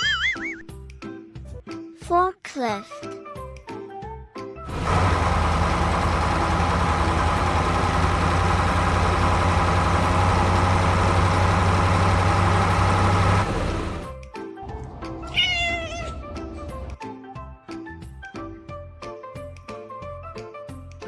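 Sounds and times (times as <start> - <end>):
forklift engine running: 4.7 - 14.0, 14.7 - 17.0.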